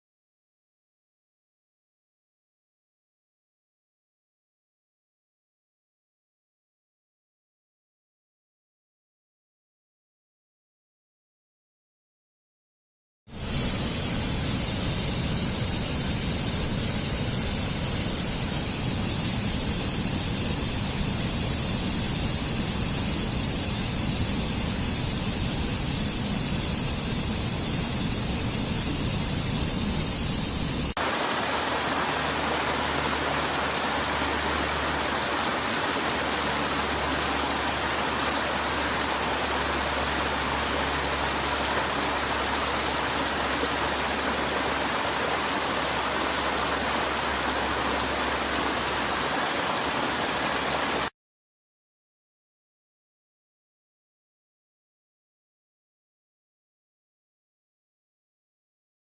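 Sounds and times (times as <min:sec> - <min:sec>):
waterfall rushing: 0:30.8 - 0:51.1.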